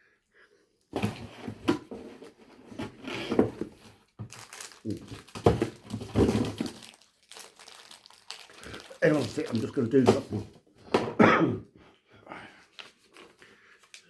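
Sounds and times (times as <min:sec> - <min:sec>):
snack packaging crinkling: 0:04.2 - 0:10.4.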